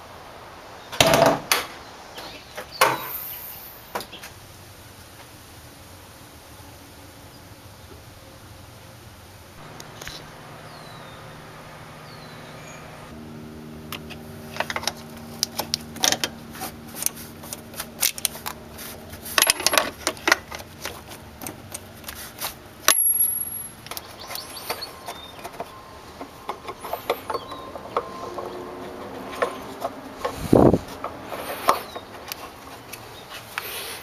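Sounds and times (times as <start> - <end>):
steady hum: 8.2 - 21.4
metallic clinks and knocks: 19.4 - 20.6.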